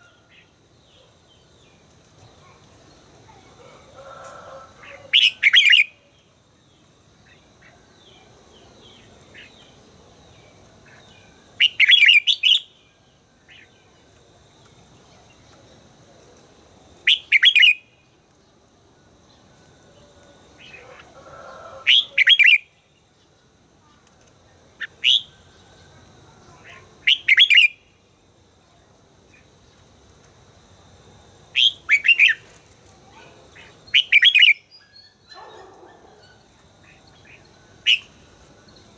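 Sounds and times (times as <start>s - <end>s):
bulbul singing: 31.6s - 32.5s.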